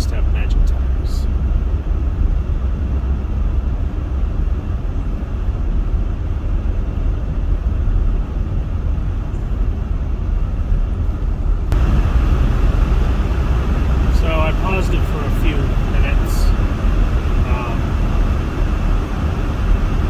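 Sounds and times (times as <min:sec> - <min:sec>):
car road and engine rumble: 0:00.0 - 0:20.0
bright road hiss: 0:11.8 - 0:20.0.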